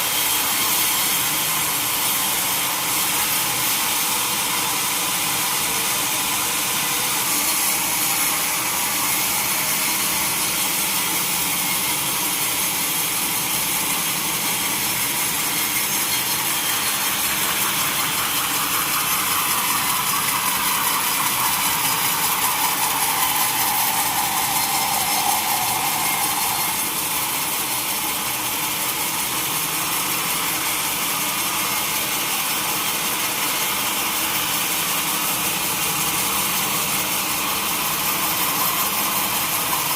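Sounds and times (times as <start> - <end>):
sawmill saw cutting log: 0.0 - 39.9
whine sliding down in pitch: 21.8 - 27.9.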